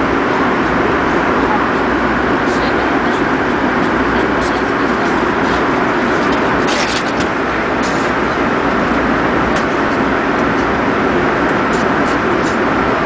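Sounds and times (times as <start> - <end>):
jet engine cabin roar: 0.0 - 13.0.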